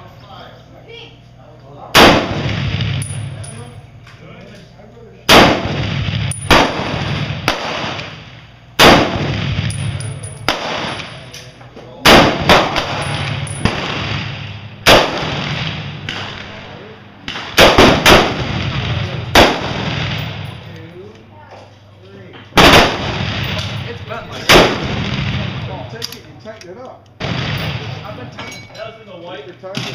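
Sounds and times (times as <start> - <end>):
rifle shots echoing: 1.9 - 3.7, 5.3 - 11.3, 12.0 - 20.6, 22.6 - 26.0, 27.2 - 28.2
distant quieter gunshots: 2.0 - 3.0, 5.3 - 9.7, 10.5 - 11.2, 12.0 - 20.4, 22.6 - 25.8, 27.2 - 28.1.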